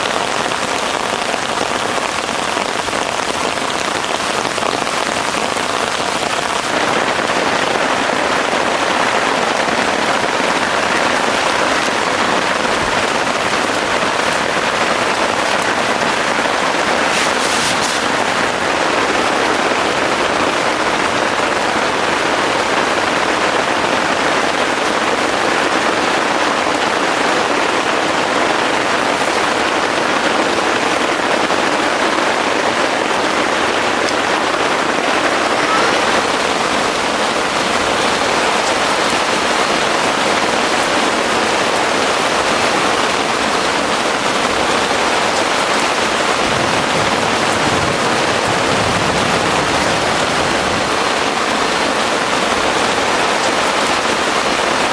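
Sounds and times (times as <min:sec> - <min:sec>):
heavy rain falling: 0:00.0 - 0:54.9
short high crackle: 0:16.9 - 0:18.4.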